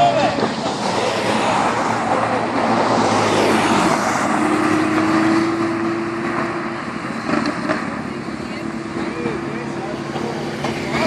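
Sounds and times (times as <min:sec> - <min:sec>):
traffic noise: 0:00.0 - 0:11.0
vehicle accelerating past: 0:00.6 - 0:11.0.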